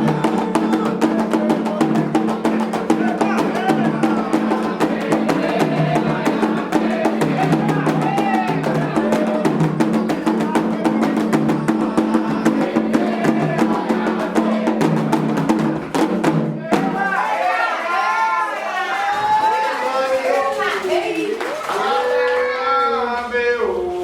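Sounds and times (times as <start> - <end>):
drums and percussion: 0.0 - 18.1
voices singing: 0.0 - 18.1.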